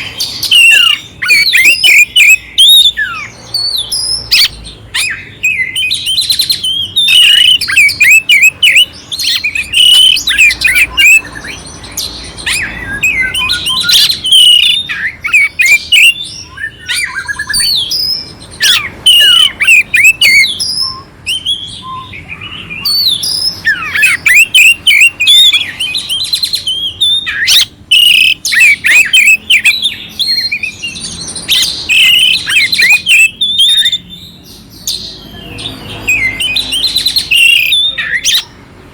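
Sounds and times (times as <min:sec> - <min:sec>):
bird singing whistled song: 0:00.0 - 0:38.6
harsh bird notes: 0:00.0 - 0:38.7.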